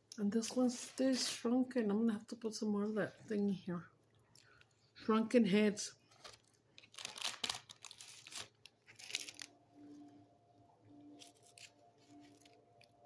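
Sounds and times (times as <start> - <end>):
packaging rustling and tearing: 6.1 - 9.6, 11.2 - 13.0.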